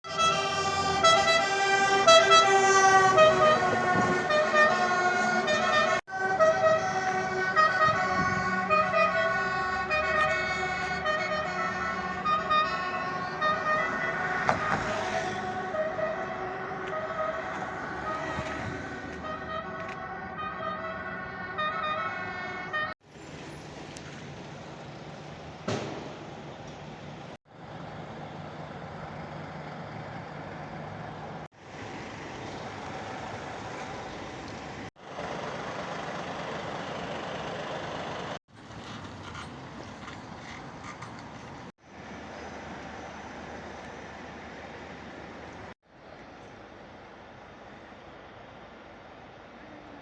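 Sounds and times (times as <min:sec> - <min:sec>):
fire engine two-tone siren: 0:00.0 - 0:23.0
vehicle engine rumble: 0:00.0 - 0:50.0.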